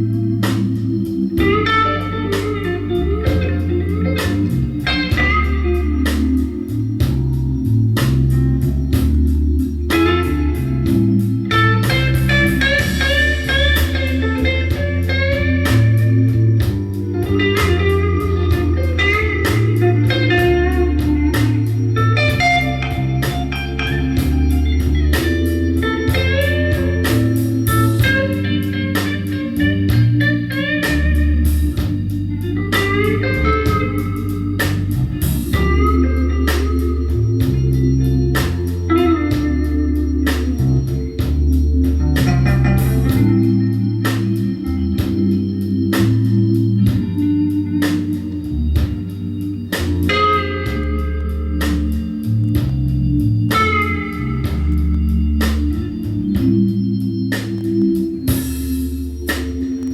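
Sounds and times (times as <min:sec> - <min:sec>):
bass line: 0:00.0 - 0:59.9
drums: 0:00.0 - 0:59.9
lead guitar solo: 0:00.0 - 0:59.9.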